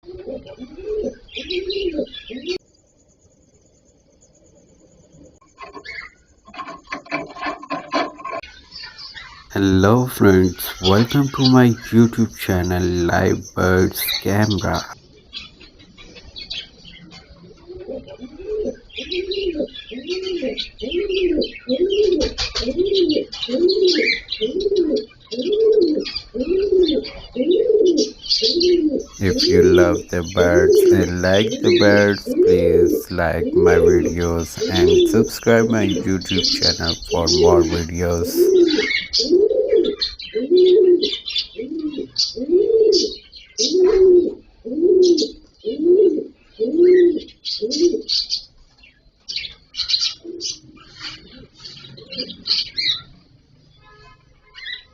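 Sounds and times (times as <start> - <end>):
pigeon cooing: 0.0 - 2.6, 9.6 - 15.0, 17.6 - 48.1
small birds chirping: 0.2 - 6.4, 8.5 - 43.9.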